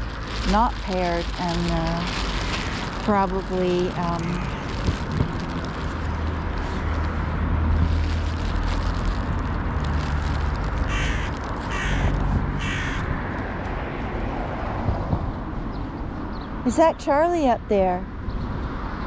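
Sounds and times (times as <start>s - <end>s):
low rumble: 0.0s - 16.5s
crow cawing: 10.9s - 13.1s.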